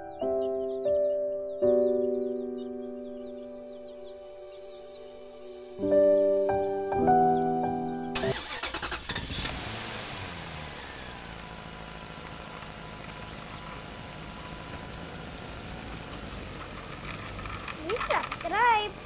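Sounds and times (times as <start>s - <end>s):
piano music: 0.0s - 8.6s
car engine cranking and idling: 8.2s - 19.0s.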